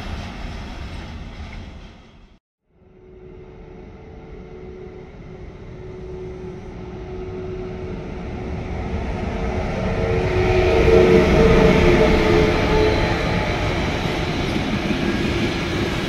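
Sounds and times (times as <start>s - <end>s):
train rumbling: 0.0s - 2.4s, 3.1s - 16.0s.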